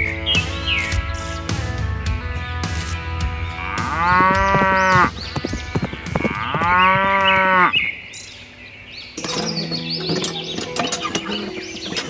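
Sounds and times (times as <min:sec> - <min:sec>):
cow mooing: 0:03.5 - 0:05.2, 0:06.1 - 0:07.8.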